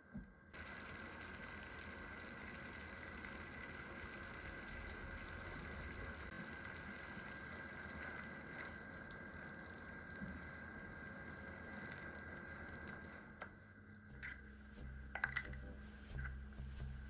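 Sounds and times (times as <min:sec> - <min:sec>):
sauce bubbling in a pan: 0:00.6 - 0:13.4.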